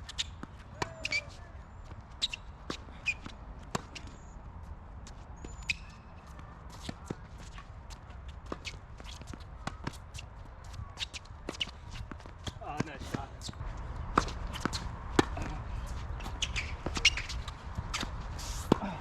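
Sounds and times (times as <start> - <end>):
sneakers squeaking on court: 0.0 - 4.4, 5.1 - 19.0
tennis ball bouncing: 11.0 - 19.0
racket striking ball: 14.0 - 19.0.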